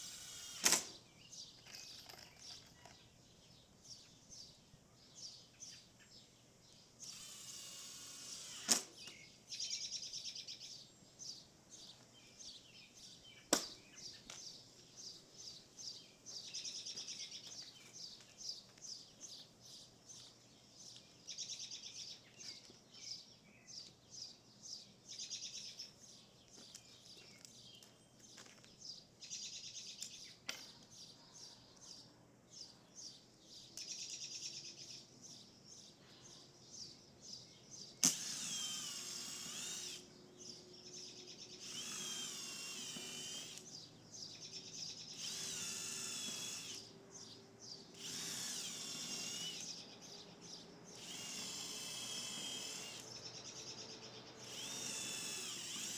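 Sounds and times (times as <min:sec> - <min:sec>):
power drill whining: 0:00.0 - 0:01.0, 0:07.0 - 0:09.2, 0:38.0 - 0:40.1, 0:41.6 - 0:43.7, 0:45.1 - 0:47.0, 0:47.9 - 0:50.2, 0:50.9 - 0:55.9
birds chirping and trilling: 0:00.0 - 0:55.9.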